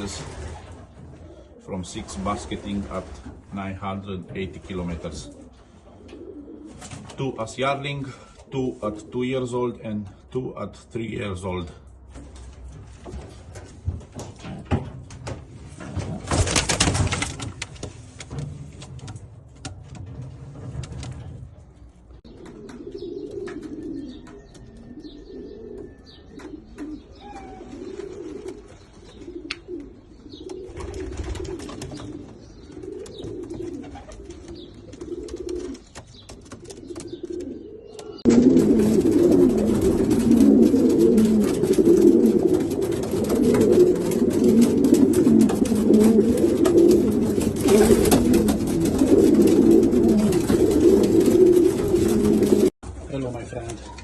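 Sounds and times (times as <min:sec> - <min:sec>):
pigeons cooing: 0:00.0 - 0:10.2, 0:21.1 - 0:52.8
rustles and knocks: 0:12.1 - 0:22.8, 0:38.3 - 0:54.0.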